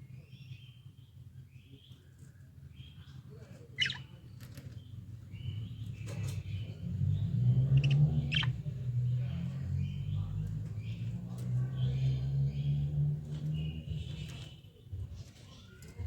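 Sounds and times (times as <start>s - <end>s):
budgerigars chirping: 3.8s - 4.2s, 5.3s - 9.2s.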